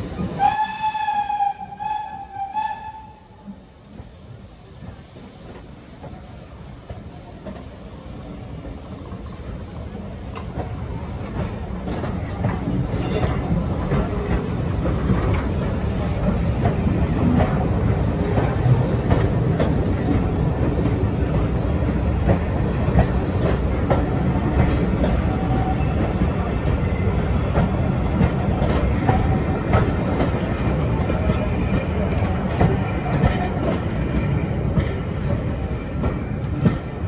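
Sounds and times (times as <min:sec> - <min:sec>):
train wheels rumbling: 0:00.0 - 0:37.0.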